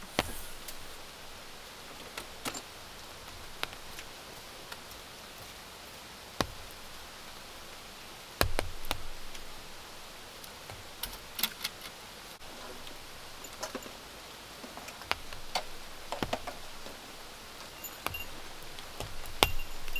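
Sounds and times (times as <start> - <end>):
sharp taps and knocks: 0.0 - 5.6, 6.3 - 13.9, 14.7 - 19.9
rain hissing: 0.0 - 19.9.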